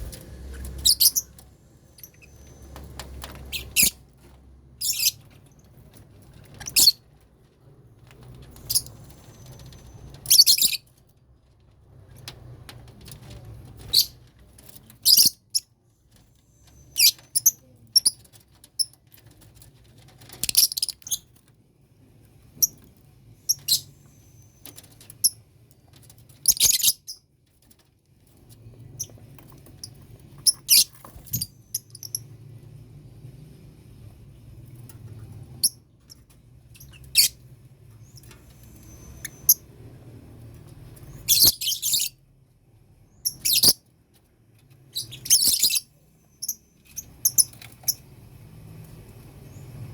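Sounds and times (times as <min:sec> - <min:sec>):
lovebirds chirping and squeaking: 0:00.0 - 0:07.1, 0:08.1 - 0:11.0, 0:13.0 - 0:19.6, 0:20.2 - 0:21.4, 0:22.6 - 0:27.3, 0:28.3 - 0:32.4, 0:35.4 - 0:39.9, 0:40.8 - 0:42.2, 0:43.1 - 0:43.9, 0:44.6 - 0:48.1.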